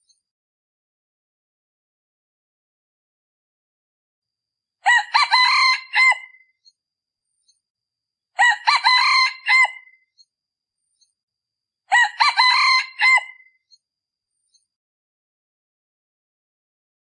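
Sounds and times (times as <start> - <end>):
rooster crowing: 4.8 - 6.4, 8.4 - 10.0, 11.9 - 13.5.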